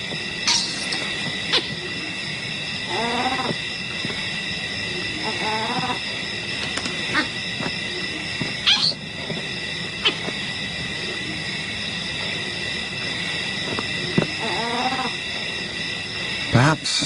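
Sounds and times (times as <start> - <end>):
wavering animal cry: 1.4 - 2.2, 2.8 - 3.7, 4.9 - 9.1, 9.9 - 10.5, 14.0 - 15.4
high animal chorus: 2.8 - 3.7, 4.9 - 9.4, 14.0 - 15.5
short animal calls: 8.6 - 9.0.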